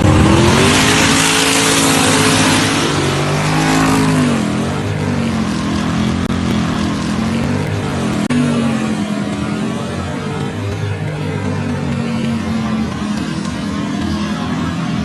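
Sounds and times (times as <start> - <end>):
engine at full throttle: 0.0 - 4.8.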